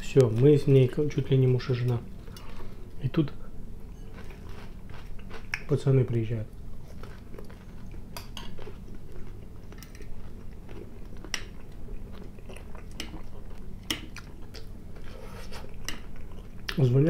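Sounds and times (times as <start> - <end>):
person chewing food: 4.0 - 5.7, 6.7 - 16.8.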